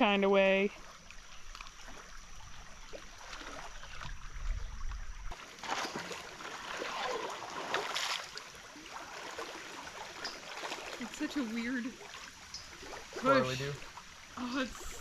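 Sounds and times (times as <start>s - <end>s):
creek water running and gurgling: 0.0s - 15.0s.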